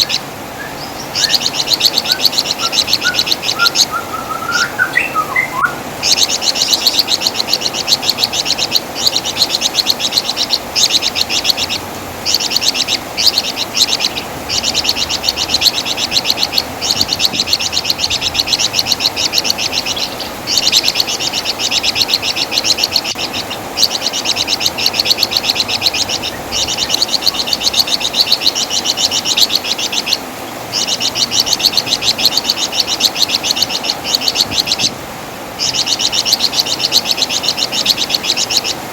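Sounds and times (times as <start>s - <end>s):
songbird chattering trills: 0.0s - 35.0s, 35.6s - 38.9s.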